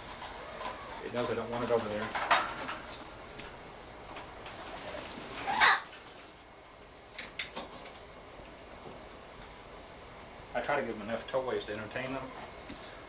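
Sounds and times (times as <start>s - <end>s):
parrot squawk: 5.3s - 6.0s.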